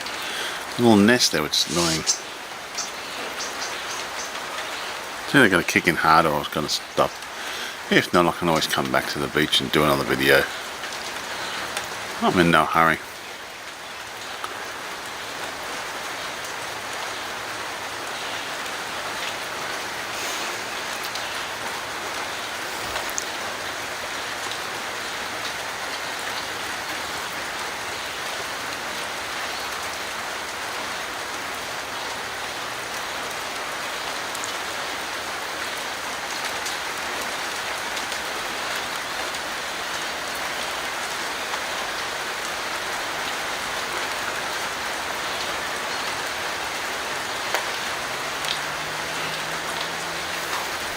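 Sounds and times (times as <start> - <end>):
steady rain hiss: 0.0 - 50.9
faint drip ticks: 14.2 - 14.7, 47.4 - 50.7.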